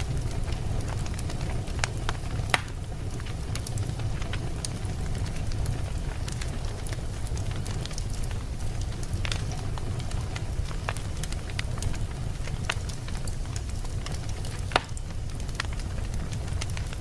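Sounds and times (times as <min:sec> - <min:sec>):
fire crackles and snaps: 0:00.0 - 0:17.0
low rumble of flames: 0:00.0 - 0:17.0
sharp fire pop: 0:02.5 - 0:02.8.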